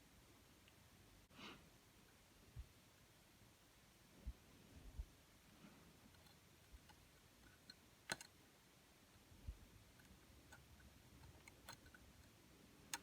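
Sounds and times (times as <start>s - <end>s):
faint clicks and ticks: 4.3s - 13.0s.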